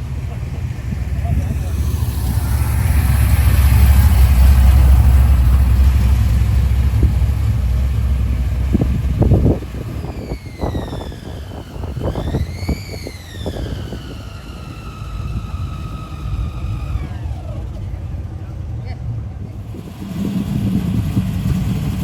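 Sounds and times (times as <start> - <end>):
car engine rumbling: 0.0 - 22.0
sliding thin tone: 0.3 - 8.1.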